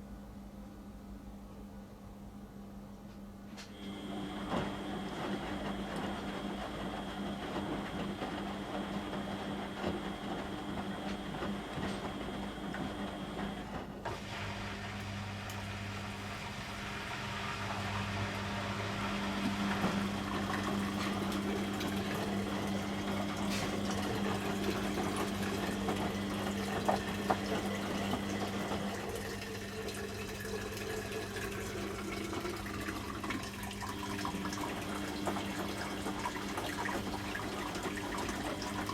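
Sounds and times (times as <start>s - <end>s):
washing machine motor hum: 2.8s - 38.9s
water sloshing in drum: 19.4s - 38.9s.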